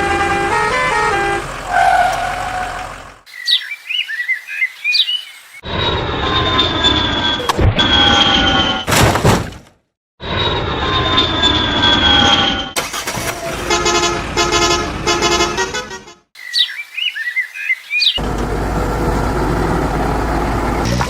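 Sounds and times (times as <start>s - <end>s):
engine running low rumble: 0.0s - 3.3s, 18.2s - 21.0s
birds chirping: 1.6s - 5.6s, 16.4s - 20.9s.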